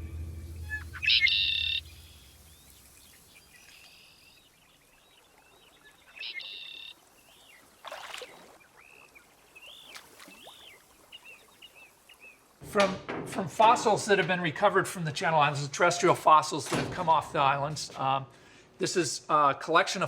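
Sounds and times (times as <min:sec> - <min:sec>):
loud bird calls: 0:00.6 - 0:04.4
faint bird chirps: 0:00.6 - 0:07.8.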